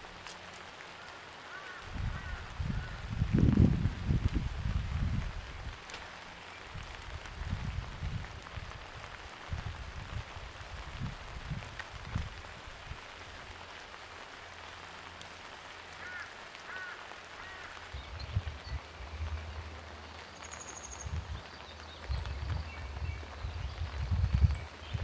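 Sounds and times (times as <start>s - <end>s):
rain hiss: 8.2s - 25.0s
bird call notes: 18.0s - 25.0s
bird trill: 18.0s - 25.0s.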